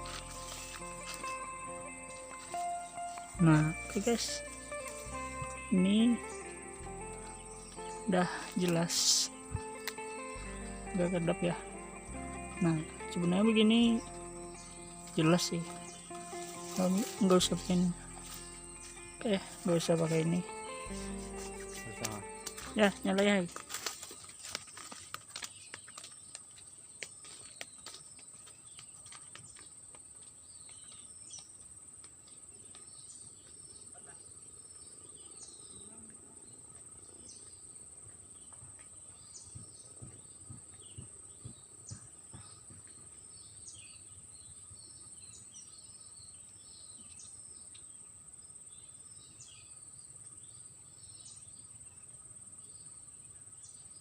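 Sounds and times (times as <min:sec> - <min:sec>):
high-pitched insect drone: 0:00.0 - 0:24.0
small birds chirping: 0:00.0 - 0:54.0.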